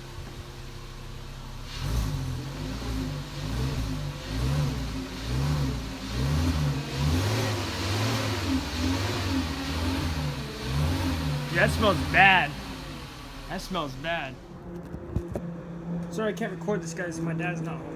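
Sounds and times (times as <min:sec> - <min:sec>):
car engine idling: 0:00.0 - 0:17.9
car engine revving: 0:00.0 - 0:17.9.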